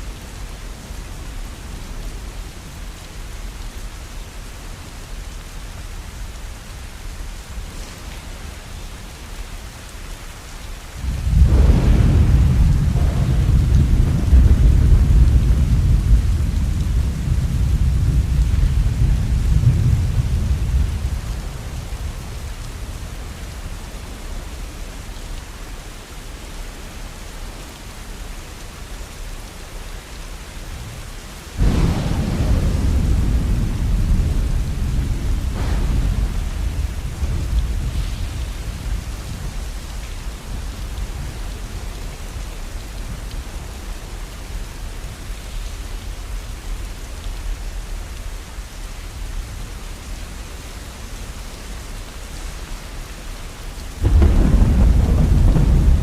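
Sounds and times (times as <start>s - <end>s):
steady rain: 0.0s - 56.0s
thunder cracking and rumbling: 11.0s - 24.2s, 31.6s - 46.1s, 53.7s - 56.0s.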